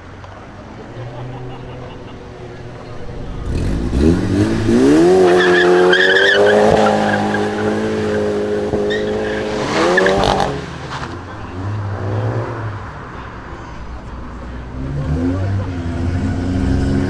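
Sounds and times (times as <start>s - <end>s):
car engine revving hard: 2.8s - 13.0s.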